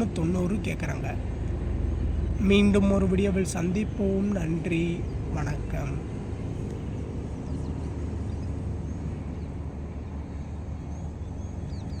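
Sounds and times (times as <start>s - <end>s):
faint bird chirps: 10.3s - 12.0s.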